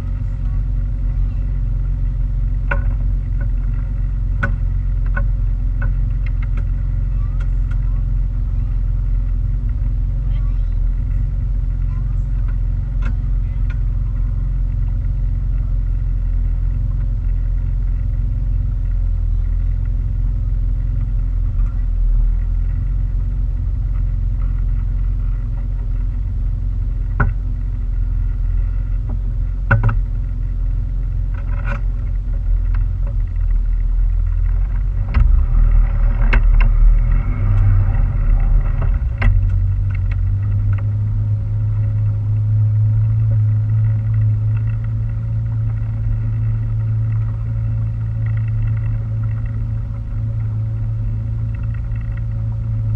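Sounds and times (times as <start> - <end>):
boat motor rumbling: 0.0 - 52.9
sharp knocks and taps: 29.1 - 30.0.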